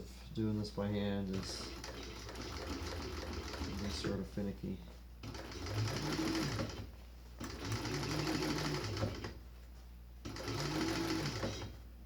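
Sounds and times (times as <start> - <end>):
sewing machine stitching: 1.4 - 4.2, 5.2 - 9.4, 10.2 - 11.8.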